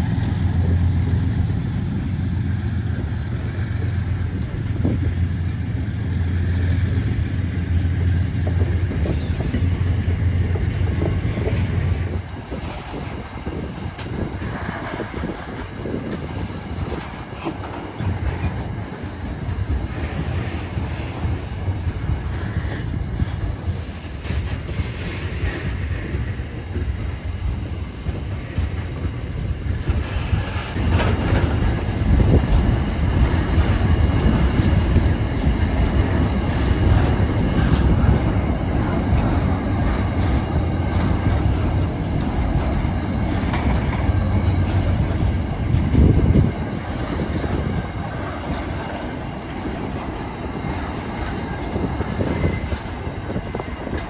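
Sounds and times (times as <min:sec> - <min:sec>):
locomotive engine drone: 0:00.0 - 0:54.0
wagons rolling rumble: 0:00.0 - 0:54.0.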